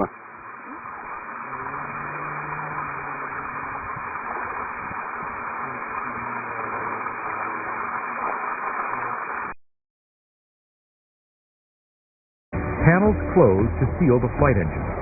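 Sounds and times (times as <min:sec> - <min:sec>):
faint low hum: 0:00.0 - 0:09.6
static hiss: 0:00.0 - 0:09.6.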